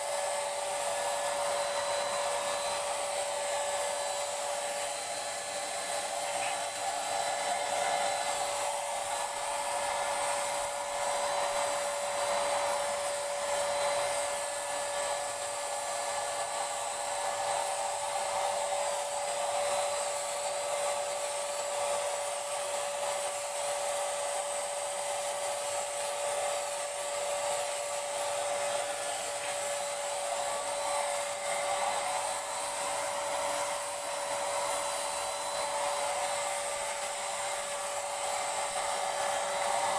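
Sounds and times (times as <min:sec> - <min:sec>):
electric paint sprayer running: 0:00.0 - 0:39.9.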